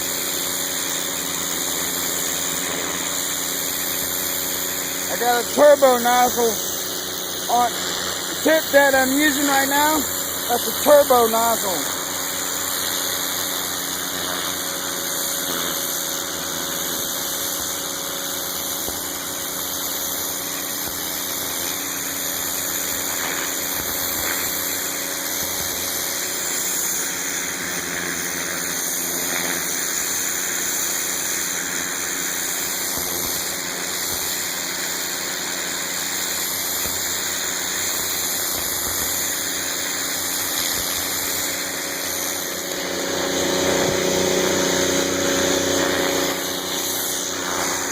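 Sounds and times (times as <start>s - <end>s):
high-pressure water spray hissing: 0.0s - 47.9s
pressure washer engine running: 0.0s - 47.9s.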